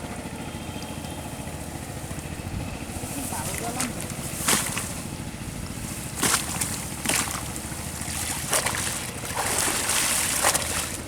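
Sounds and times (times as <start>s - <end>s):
river water splashing: 3.0s - 11.0s.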